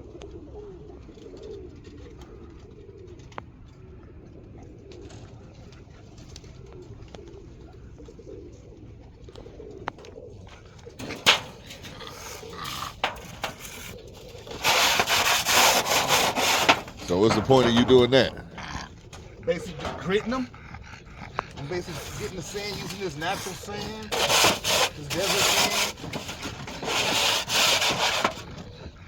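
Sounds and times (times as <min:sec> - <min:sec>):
pigeons cooing: 0:00.0 - 0:29.0
rough scraping and rubbing: 0:11.0 - 0:20.5, 0:21.3 - 0:29.0.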